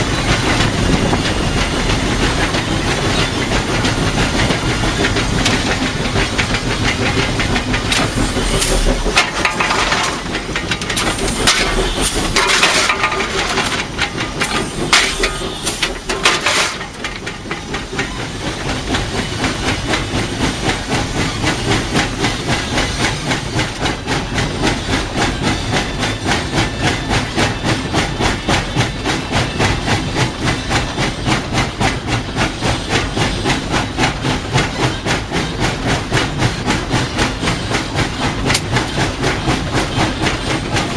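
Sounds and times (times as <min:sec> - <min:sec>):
steam hissing: 0:00.0 - 0:40.9
steam locomotive exhaust chuffs: 0:00.0 - 0:40.9.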